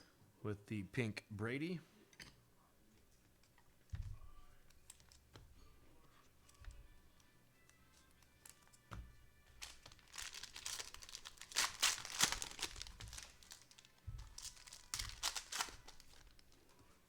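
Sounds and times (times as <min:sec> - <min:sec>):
cellophane wrapper tearing and crinkling: 0:09.6 - 0:16.8.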